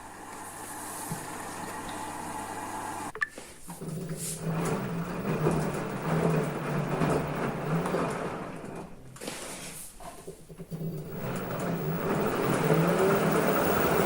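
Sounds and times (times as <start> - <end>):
washing machine churning: 0.0 - 3.1, 3.7 - 14.0.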